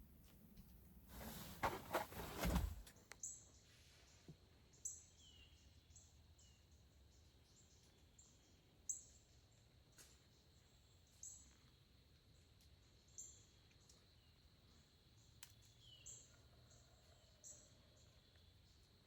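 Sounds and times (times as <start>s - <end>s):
rustling bump: 1.1s - 2.9s
small birds chirping: 3.1s - 19.0s.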